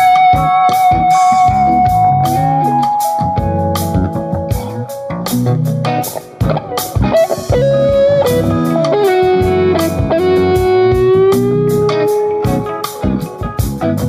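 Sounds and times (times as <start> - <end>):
blues-rock band playing: 0.0 - 14.0
electric guitar sustained note: 6.4 - 13.5.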